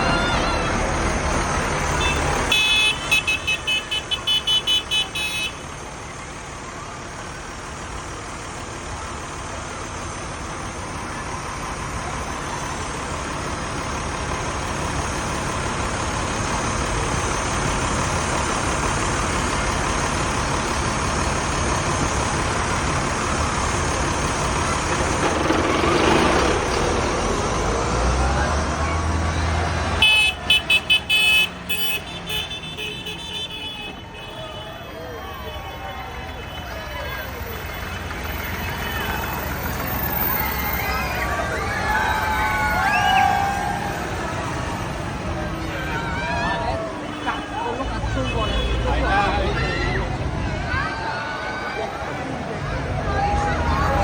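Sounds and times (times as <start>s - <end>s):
passing tractors and traffic: 0.0s - 54.0s
vehicle horn tooting rapidly: 2.0s - 5.7s, 30.0s - 37.1s, 47.0s - 49.1s.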